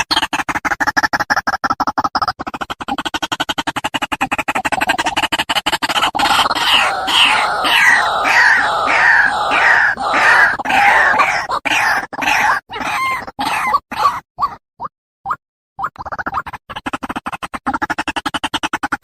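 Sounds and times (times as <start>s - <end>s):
bird harsh falling calls: 6.2s - 13.7s.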